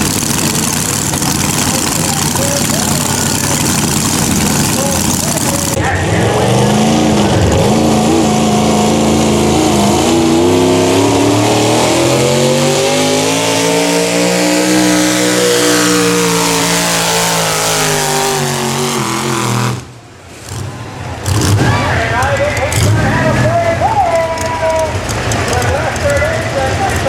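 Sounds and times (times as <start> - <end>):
truck engine at full throttle: 0.0 - 27.0.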